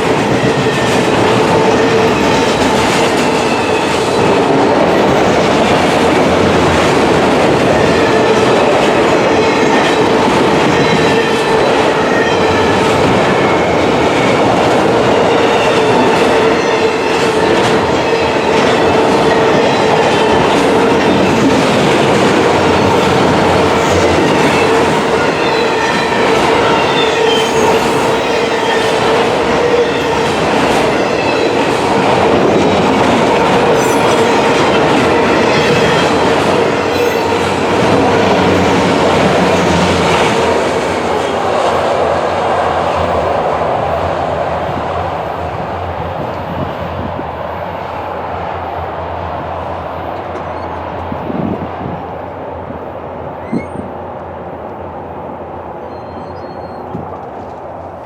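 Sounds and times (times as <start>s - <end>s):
freight train cars rolling past: 0.0s - 58.0s
high wheel squeal: 23.8s - 30.2s, 53.4s - 53.9s, 55.8s - 57.0s.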